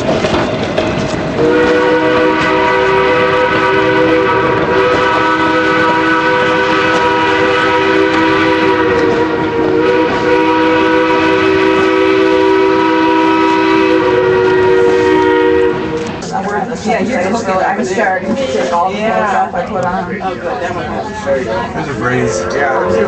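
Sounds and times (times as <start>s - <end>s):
steam locomotive whistle: 1.4s - 16.1s, 22.1s - 23.0s.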